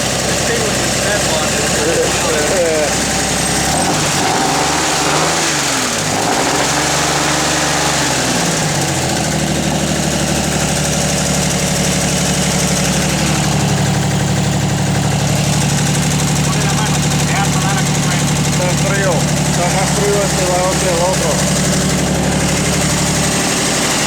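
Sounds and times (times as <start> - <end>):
car engine revving and idling: 0.0 - 24.0.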